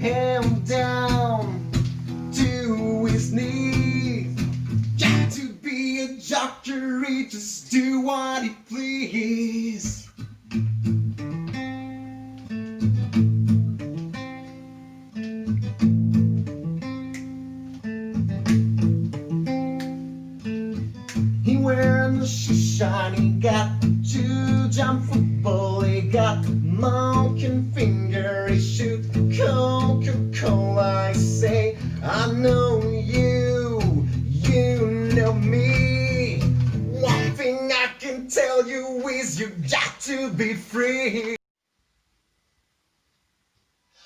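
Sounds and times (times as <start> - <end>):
acoustic guitar strumming: 0.0 - 5.4, 9.9 - 37.9
person singing: 0.0 - 10.1, 21.4 - 41.4.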